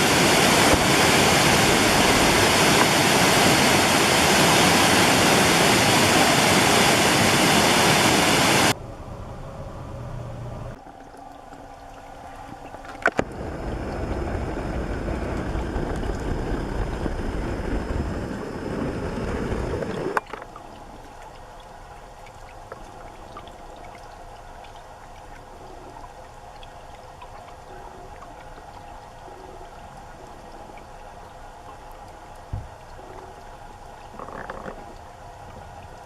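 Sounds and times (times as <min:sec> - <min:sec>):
water running and gurgling: 0:00.0 - 0:08.8, 0:10.7 - 0:36.0
water trickling: 0:10.7 - 0:36.0.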